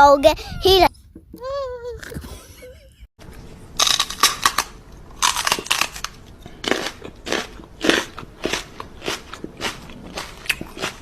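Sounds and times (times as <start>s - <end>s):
loud crunching: 3.8s - 11.0s.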